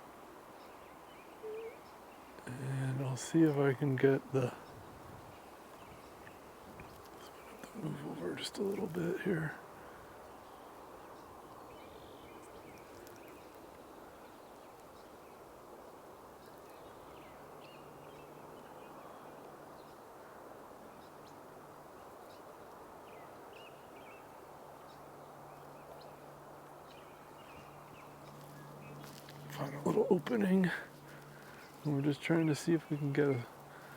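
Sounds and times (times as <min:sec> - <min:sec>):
faint bird chirps: 0:00.6 - 0:03.8.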